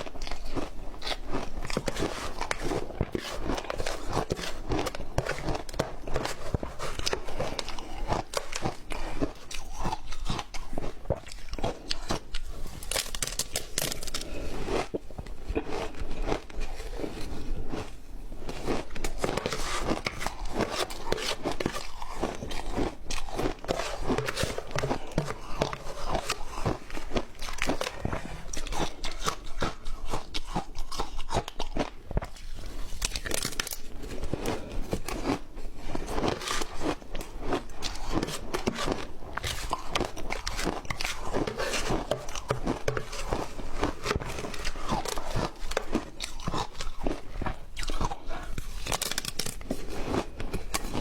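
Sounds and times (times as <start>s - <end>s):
ice crunching while chewed: 0.0s - 51.0s.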